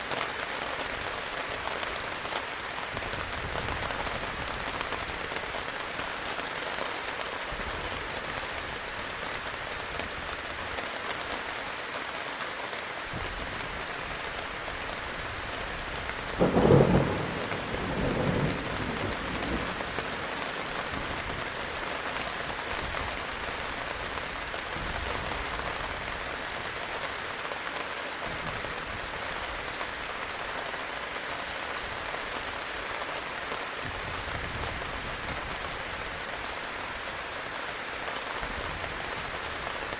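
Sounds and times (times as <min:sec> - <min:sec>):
heavy rain falling: 0:00.0 - 0:39.9
thunder crack and roll: 0:16.4 - 0:20.2.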